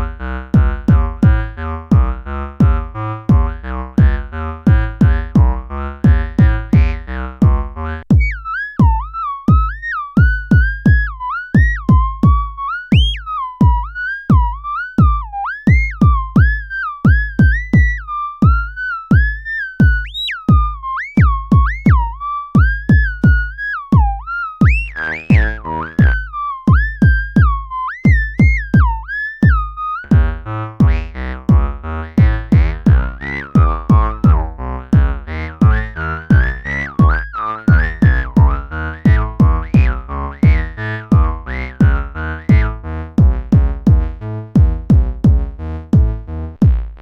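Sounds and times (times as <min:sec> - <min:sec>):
drum machine kick: 0:00.0 - 0:47.0
stacked synth notes pattern: 0:00.0 - 0:47.0
sliding synth lead: 0:24.0 - 0:27.3, 0:28.1 - 0:43.0.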